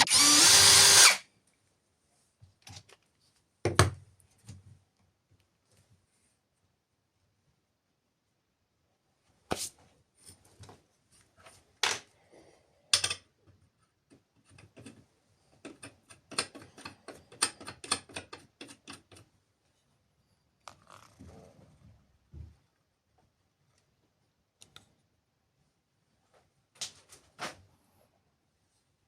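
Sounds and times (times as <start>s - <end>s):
metal tools clicking and knocking: 12.9s - 13.3s, 15.6s - 19.2s.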